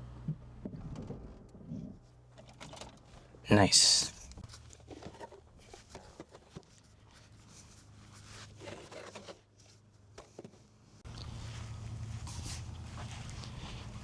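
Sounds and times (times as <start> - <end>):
clicks and rustles of handling: 4.1 - 14.0
low steady hum: 11.0 - 14.0.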